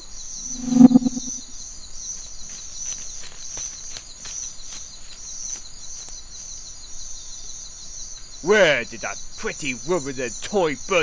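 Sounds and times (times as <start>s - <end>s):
insects chirring: 2.4s - 11.0s.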